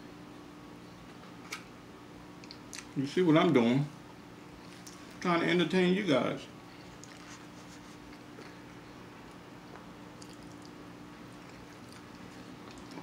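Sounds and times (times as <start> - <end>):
steady low hum: 0.0 - 13.0
faint chewing: 6.8 - 13.0.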